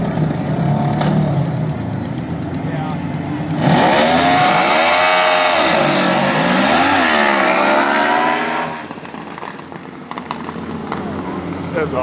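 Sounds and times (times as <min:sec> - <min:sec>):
lawn mower engine revving: 0:02.8 - 0:09.2.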